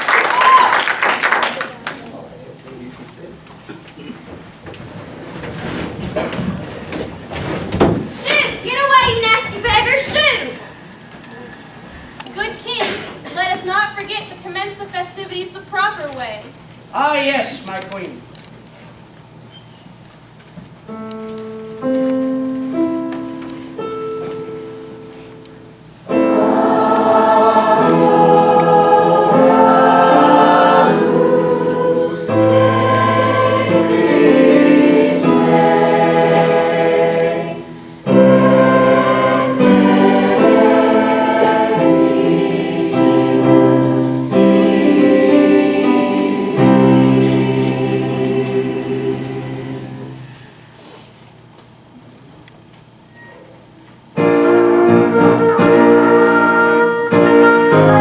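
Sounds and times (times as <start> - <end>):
instrumental held notes: 20.9 - 50.7
choir singing with accompaniment: 26.0 - 50.8, 54.2 - 58.0.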